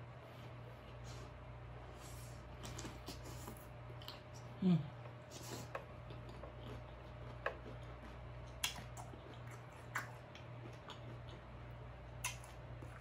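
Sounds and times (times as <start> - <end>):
faint steady hum: 0.0 - 13.0
wet mouth chewing clicks: 5.7 - 11.4, 12.2 - 13.0.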